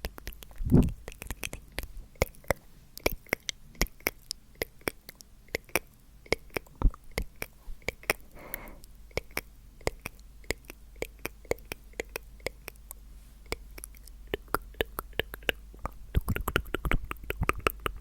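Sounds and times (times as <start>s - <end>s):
tongue and lip clicks: 0.0s - 18.0s
breathy whispered exhale: 8.3s - 8.9s.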